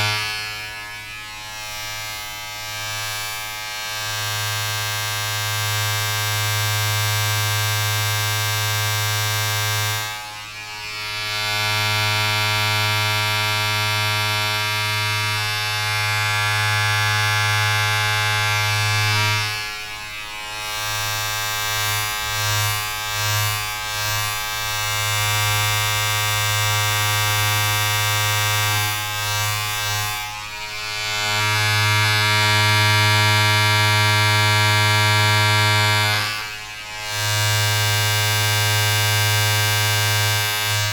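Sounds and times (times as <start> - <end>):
electric motor buzzing: 16.1 - 40.9.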